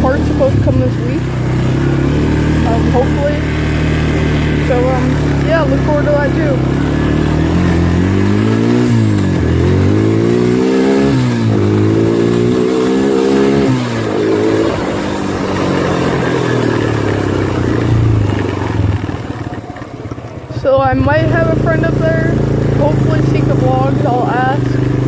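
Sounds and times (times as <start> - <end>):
quad bike engine accelerating: 0.0 - 25.0.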